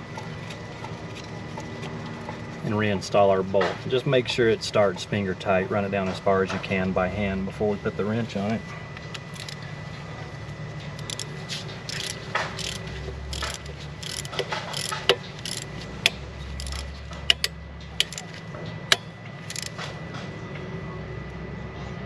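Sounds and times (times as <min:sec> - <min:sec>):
steady low hum: 0:00.0 - 0:22.0
ratchet wrench clicking: 0:09.2 - 0:09.6, 0:11.0 - 0:19.8.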